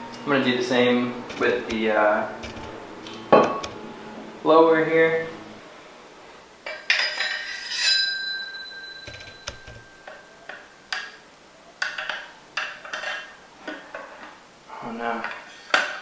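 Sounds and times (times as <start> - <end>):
metal parts clinking: 6.6 - 11.2
ringing metal tone: 6.6 - 11.3.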